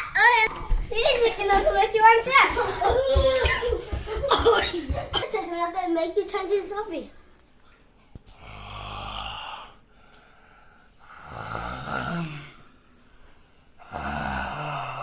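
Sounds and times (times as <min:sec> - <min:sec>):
rasping snore-like breaths: 0:08.4 - 0:09.8, 0:11.0 - 0:12.6, 0:13.8 - 0:15.0.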